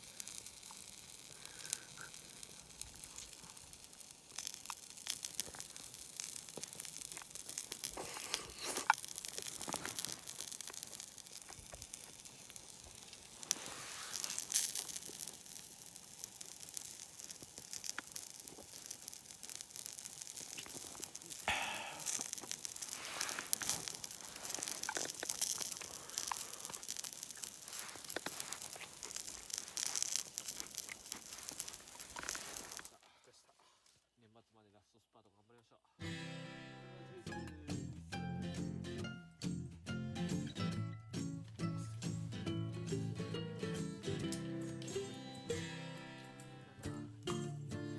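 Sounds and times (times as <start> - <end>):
wood campfire crackling: 0.0 - 34.0, 37.3 - 47.9
rustling: 0.0 - 34.6.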